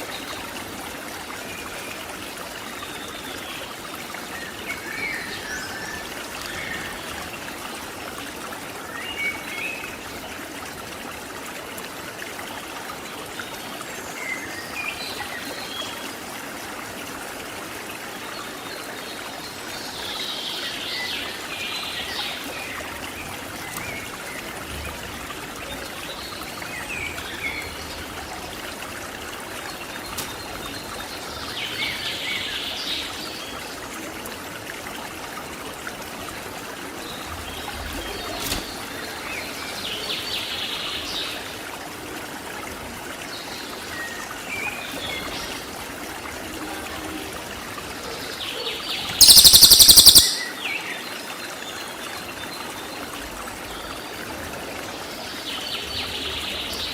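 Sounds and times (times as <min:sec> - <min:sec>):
bird chirping and singing: 0:49.2 - 0:50.6
stream rushing: 0:49.2 - 0:51.1.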